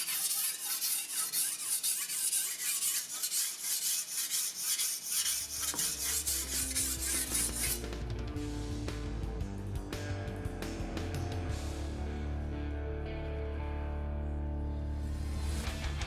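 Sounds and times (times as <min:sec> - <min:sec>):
file rubbing on steel blade: 0:00.0 - 0:07.9
background music: 0:05.8 - 0:16.0.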